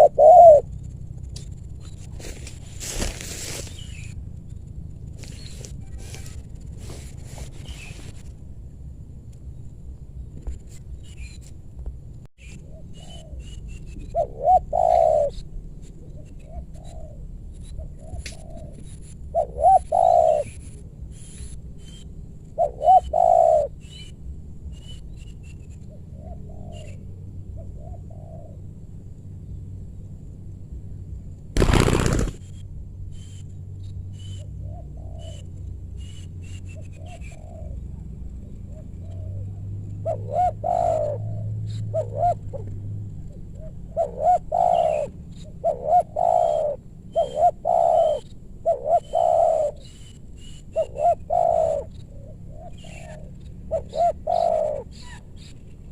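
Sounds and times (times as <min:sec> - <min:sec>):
doves cooing: 0:00.0 - 0:00.9, 0:12.5 - 0:21.4, 0:22.5 - 0:23.8, 0:25.7 - 0:28.8, 0:31.6 - 0:32.5, 0:34.4 - 0:36.1, 0:36.7 - 0:55.9
small birds chirping: 0:00.0 - 0:08.5, 0:09.3 - 0:55.9
short loud rushing noise: 0:31.6 - 0:32.4.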